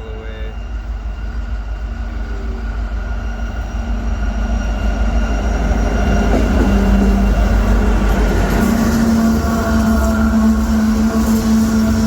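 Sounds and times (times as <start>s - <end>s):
freight train rumbling: 0.0s - 12.0s.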